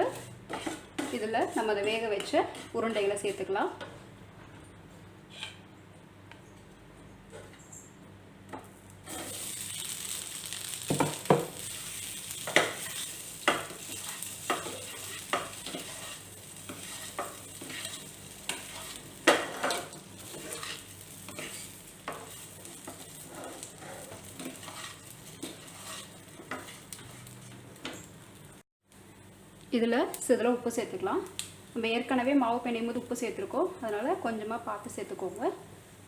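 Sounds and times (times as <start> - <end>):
spatula scraping and knocking pan: 0.1 - 3.0, 12.4 - 28.0
dumplings sizzling in oil: 8.8 - 36.0.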